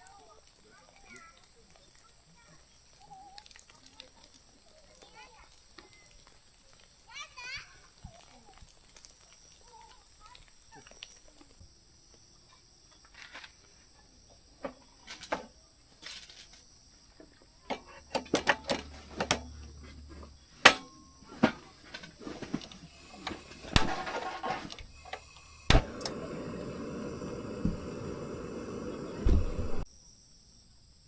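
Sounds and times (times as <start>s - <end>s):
insects trilling: 0.0s - 31.0s
steady rushing noise: 25.7s - 29.8s.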